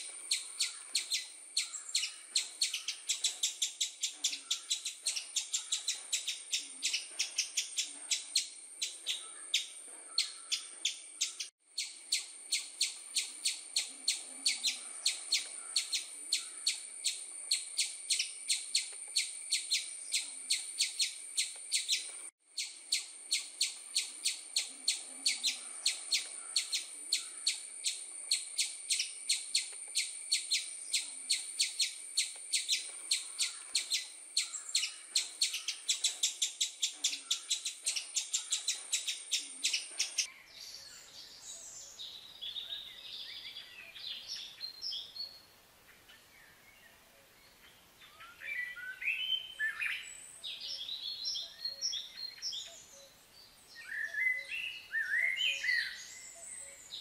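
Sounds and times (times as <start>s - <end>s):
small bird chirping rapidly: 0.0s - 40.3s
soft varied birdsong: 0.0s - 57.0s.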